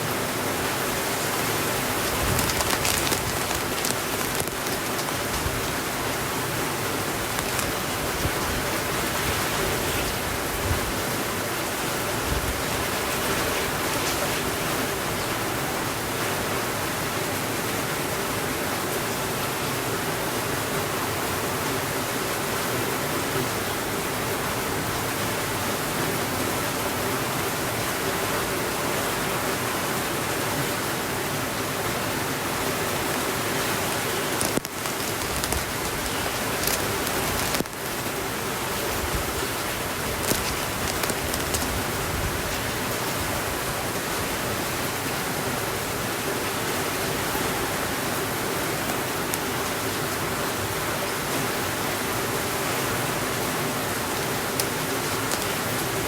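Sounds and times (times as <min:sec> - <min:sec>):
heavy rain on window: 0:00.0 - 0:56.0
fireplace crackling: 0:01.0 - 0:08.3, 0:33.4 - 0:42.1.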